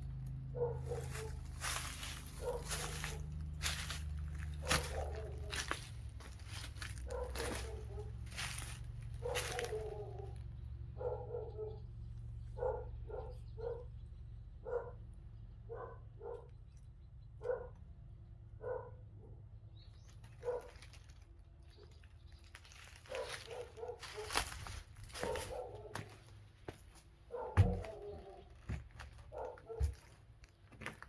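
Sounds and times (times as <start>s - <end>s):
dog barking: 0.4s - 11.9s, 12.5s - 14.0s, 14.6s - 16.6s, 17.4s - 17.8s, 18.6s - 19.4s, 20.4s - 20.8s, 23.0s - 26.3s, 27.3s - 28.6s, 29.2s - 30.2s.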